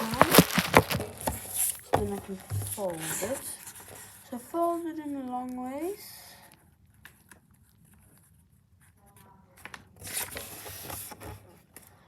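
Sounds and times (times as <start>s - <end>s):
paper taps: 0.0s - 4.0s
paper rustling: 0.0s - 4.8s, 7.0s - 11.6s.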